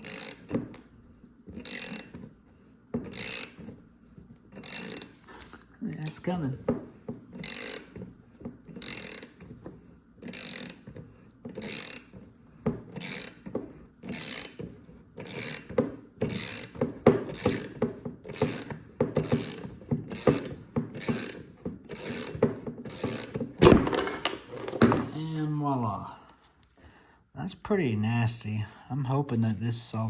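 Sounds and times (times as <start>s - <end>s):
ratchet wrench clicking: 0.0s - 0.5s, 1.6s - 2.2s, 3.1s - 3.7s, 4.6s - 5.2s, 7.4s - 8.0s, 8.8s - 9.5s, 10.2s - 10.9s, 11.6s - 12.2s, 13.0s - 13.4s, 14.1s - 14.6s, 15.2s - 23.3s
bearing creaks and knocks: 0.0s - 0.9s, 1.5s - 26.0s.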